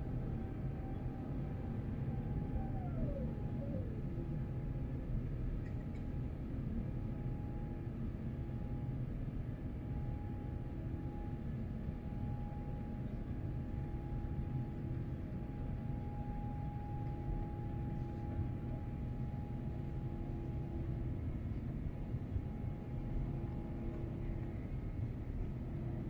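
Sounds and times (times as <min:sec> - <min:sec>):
faint steady hums: 0:00.0 - 0:26.0
airplane cabin rumble: 0:11.0 - 0:26.0.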